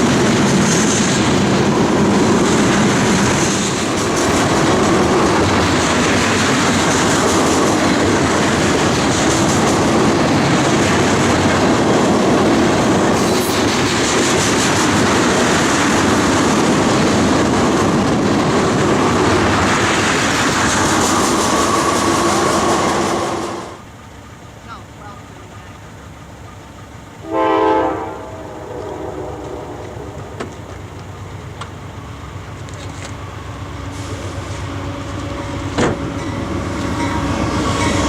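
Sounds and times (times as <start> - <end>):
train wheels on rails clacking: 0.0 - 23.8.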